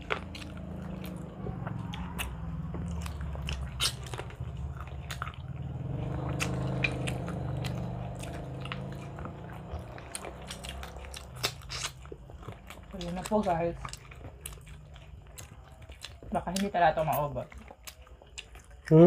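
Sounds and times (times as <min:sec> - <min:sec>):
people chewing food: 0:00.0 - 0:19.0
steady low hum: 0:00.0 - 0:19.0
wet lip smacks and clicks: 0:03.0 - 0:04.4, 0:10.0 - 0:18.7.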